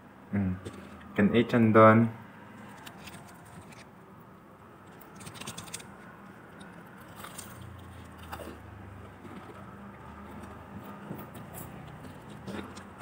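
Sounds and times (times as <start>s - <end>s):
crunchy chewing of fried chicken: 2.5s - 13.0s.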